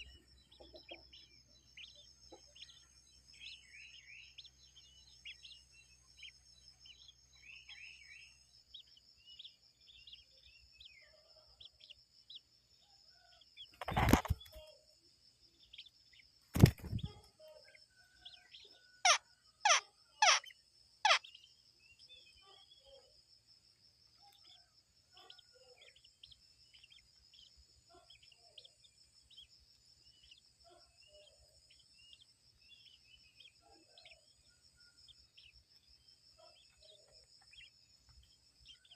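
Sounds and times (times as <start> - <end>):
bird calls: 0.0 - 14.8, 15.6 - 23.2
faint chirps: 0.0 - 38.9.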